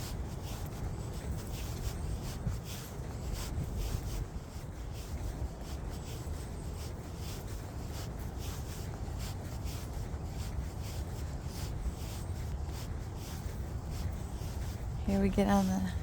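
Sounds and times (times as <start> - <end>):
footsteps crunching on trail: 0.0 - 16.0
wind rumbling on microphone: 0.0 - 16.0.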